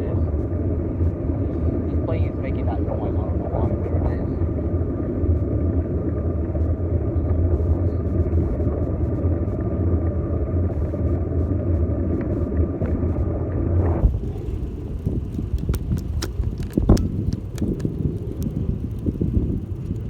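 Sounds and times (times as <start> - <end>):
airplane engine droning overhead: 0.0 - 20.0
wind noise: 0.0 - 20.0
light clicks: 15.3 - 18.7.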